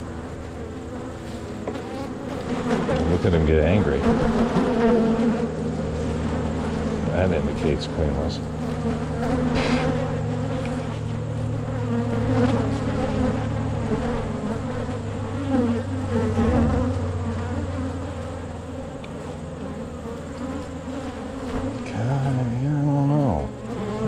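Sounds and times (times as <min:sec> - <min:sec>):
bees buzzing: 0:00.0 - 0:24.0.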